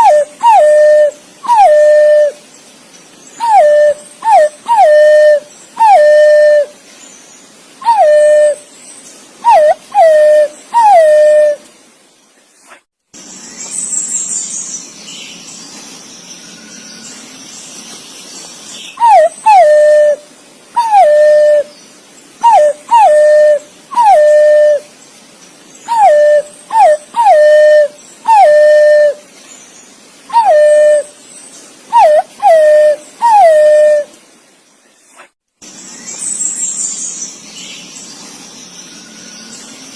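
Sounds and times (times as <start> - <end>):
pigeon whistled calls: 0.0 - 2.4, 3.4 - 6.7, 7.8 - 8.6, 9.4 - 11.6, 19.0 - 20.2, 20.8 - 21.7, 22.4 - 24.8, 25.9 - 29.2, 30.3 - 31.1, 31.9 - 34.1.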